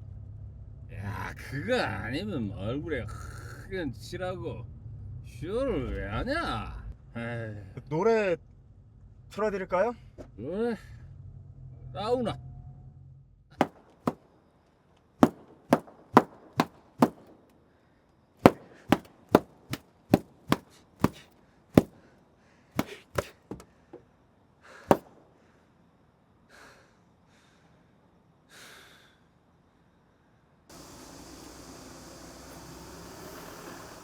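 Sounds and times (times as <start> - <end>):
sharp knocks: 13.6 - 14.2, 15.2 - 17.4, 18.4 - 21.2, 22.8 - 23.6, 24.9 - 25.2.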